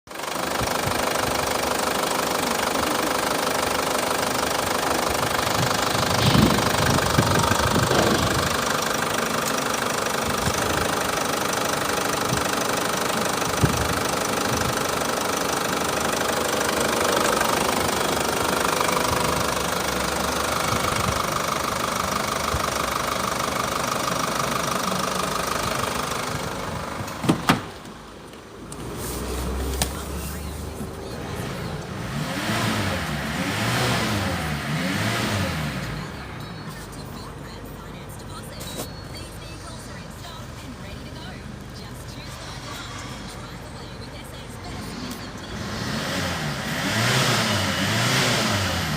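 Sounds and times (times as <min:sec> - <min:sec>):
car engine idling: 0:00.1 - 0:48.9
engine knocks stopping: 0:03.1 - 0:15.0.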